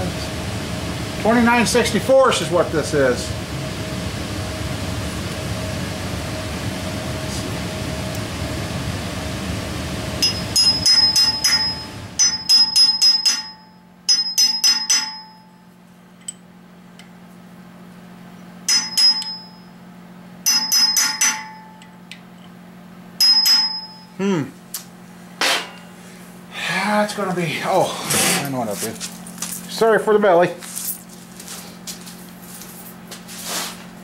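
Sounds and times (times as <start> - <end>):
hammer tapping metal with ring: 10.2 - 15.5, 18.7 - 19.6, 20.5 - 21.9, 23.2 - 24.1.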